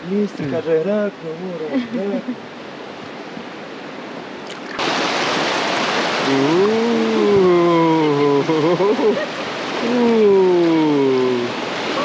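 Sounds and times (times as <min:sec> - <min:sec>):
rushing whitewater: 0:00.0 - 0:12.0.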